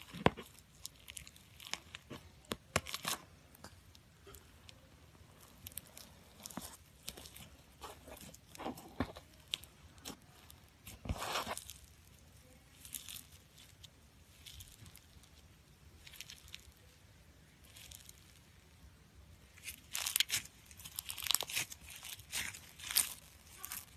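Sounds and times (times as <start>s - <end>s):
sticky slime tearing: 0.0s - 3.4s, 19.4s - 23.9s
slime beads crackling: 0.0s - 23.9s.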